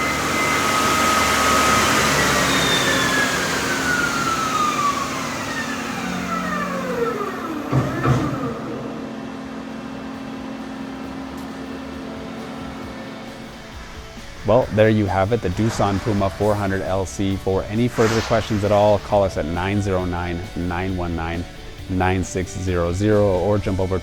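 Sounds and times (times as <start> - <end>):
lathe spindle whine winding down: 0.0 - 24.0
machine hum: 0.0 - 24.0
machine knocks: 7.6 - 8.8, 15.1 - 20.5.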